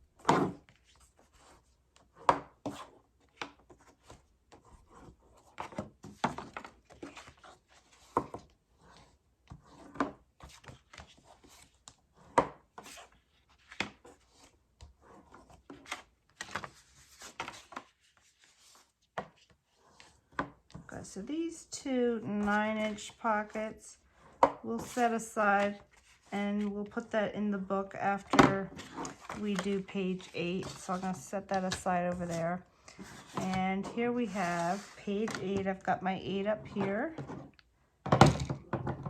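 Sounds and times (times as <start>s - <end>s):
cardstock folding: 0.2s - 20.9s.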